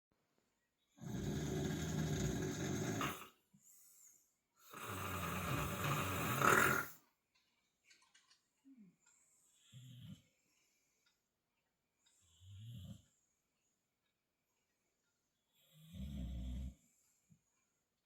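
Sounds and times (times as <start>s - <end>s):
dog snoring: 1.0s - 3.4s, 4.6s - 7.0s, 12.3s - 13.1s, 15.6s - 16.9s
faint breath: 3.6s - 4.4s, 8.7s - 11.2s.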